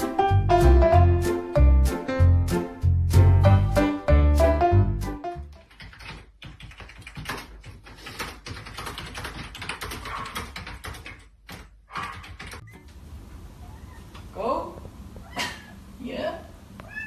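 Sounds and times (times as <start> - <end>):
music: 0.0 - 5.6.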